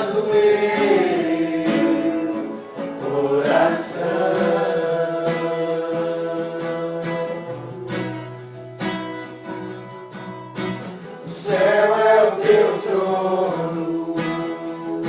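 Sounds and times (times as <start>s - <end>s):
voices singing a worship song: 0.0s - 8.3s, 11.2s - 15.0s
strummed acoustic guitar: 0.0s - 15.0s.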